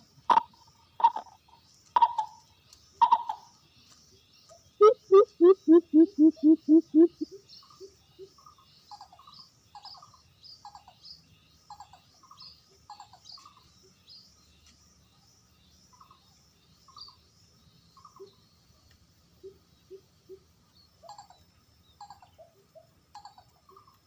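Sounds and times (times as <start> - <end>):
small birds chirping: 0.0 - 24.0
dove cooing: 0.3 - 1.4, 4.8 - 7.3.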